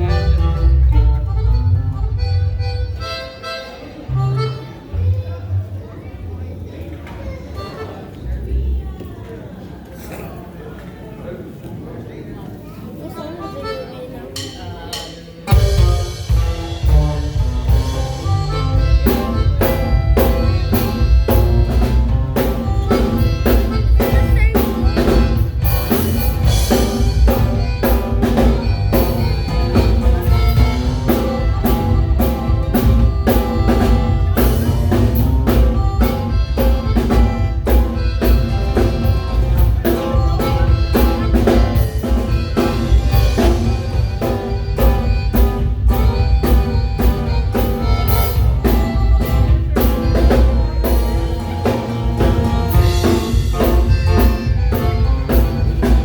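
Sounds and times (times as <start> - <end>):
band playing: 0.0 - 6.1, 13.0 - 56.0
drum kit steady beat: 14.3 - 56.0.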